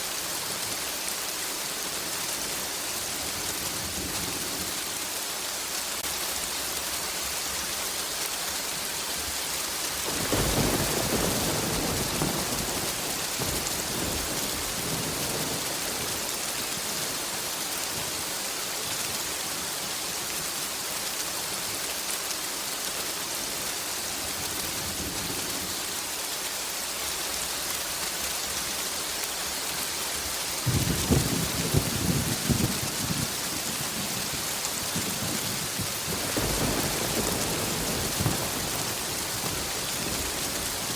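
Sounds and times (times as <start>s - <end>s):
heavy rain hissing: 0.0s - 40.9s
crackling thunder peal: 10.1s - 16.4s, 30.6s - 40.9s
thunder rumbling: 10.1s - 16.4s, 30.6s - 40.9s.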